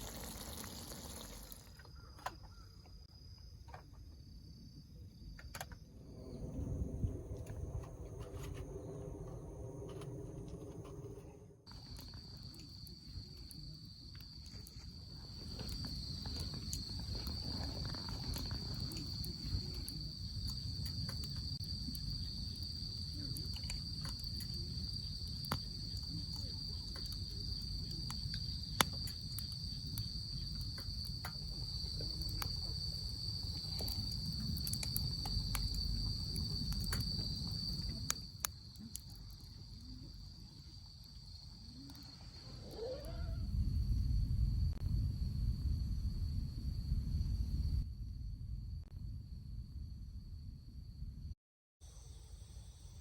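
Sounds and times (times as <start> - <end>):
crickets trilling: 0.0 - 53.0
low rumble: 5.9 - 12.7, 43.3 - 51.3.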